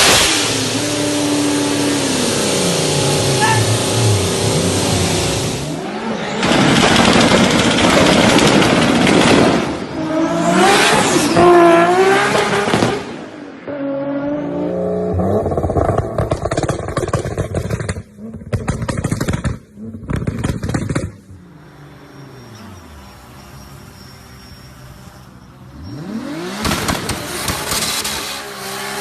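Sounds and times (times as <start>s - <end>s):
car engine revving hard: 0.0s - 7.3s, 10.0s - 13.1s, 25.8s - 29.0s
crackling engine: 0.0s - 9.8s, 15.1s - 29.0s.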